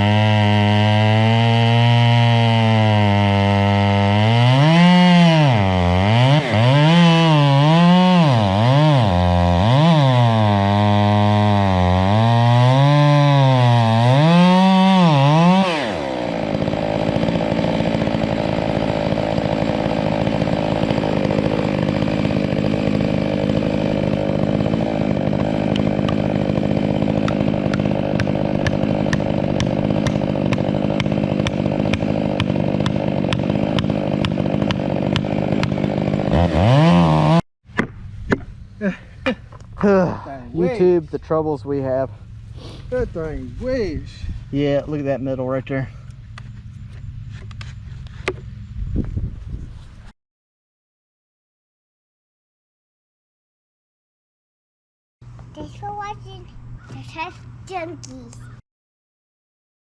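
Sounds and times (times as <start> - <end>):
chainsaw engine revving: 0.0 - 37.4, 39.8 - 47.4.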